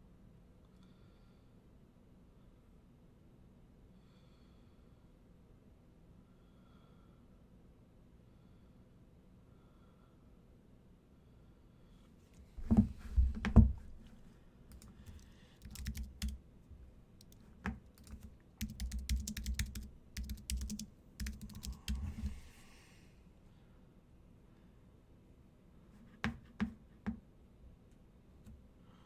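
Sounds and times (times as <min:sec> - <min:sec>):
computer keyboard typing: 0:14.7 - 0:16.4, 0:17.2 - 0:22.4.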